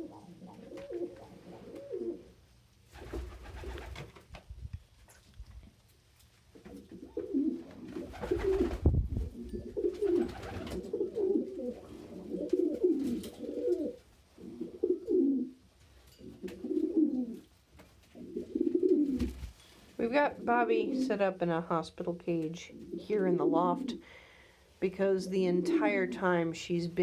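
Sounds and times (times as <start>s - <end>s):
pigeons cooing: 0.0s - 4.0s, 6.6s - 15.6s, 16.2s - 17.5s, 18.1s - 19.8s, 20.4s - 21.3s, 22.6s - 24.1s.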